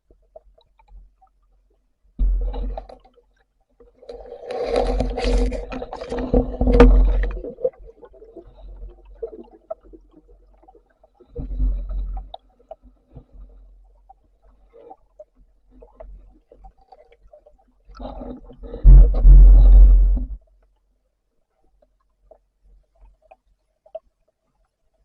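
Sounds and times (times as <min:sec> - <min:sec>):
water gurgling underwater: 0:04.5 - 0:12.3, 0:18.0 - 0:20.4
low hum: 0:18.8 - 0:20.4.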